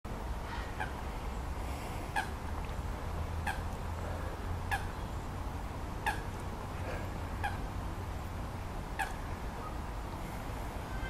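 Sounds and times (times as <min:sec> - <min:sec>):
low steady rumble: 0:00.1 - 0:11.0
bird calling: 0:02.0 - 0:02.4, 0:03.4 - 0:05.2, 0:06.0 - 0:07.7, 0:08.9 - 0:09.9.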